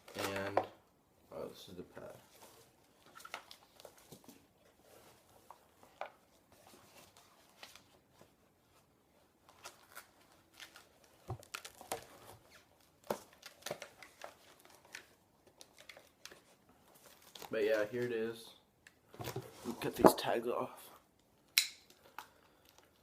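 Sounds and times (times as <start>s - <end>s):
packaging crinkling and tearing: 9.5s - 17.5s.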